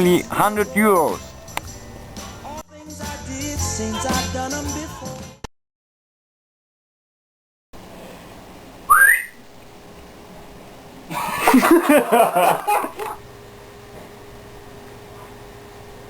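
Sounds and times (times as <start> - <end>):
short upward whistle: 8.9 - 9.4.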